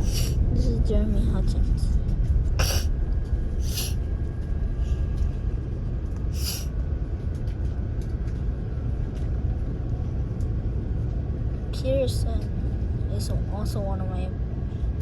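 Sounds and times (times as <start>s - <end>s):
jet engine cabin rumble: 0.0s - 15.0s.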